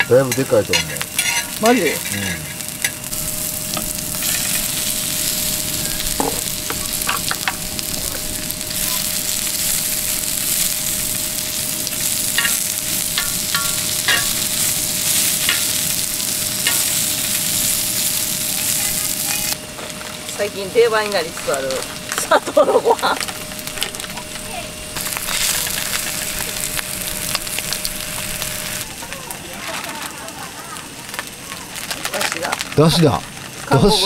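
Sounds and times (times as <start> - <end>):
metal tongs clicking and scraping: 0.0 - 3.0, 13.2 - 14.4
food sizzling on griddle: 0.0 - 34.0.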